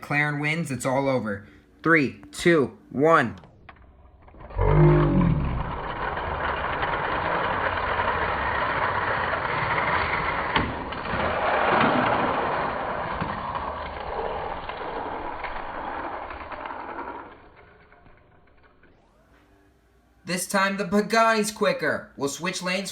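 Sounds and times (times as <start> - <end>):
toy cars rolling on plastic track: 3.7 - 19.2.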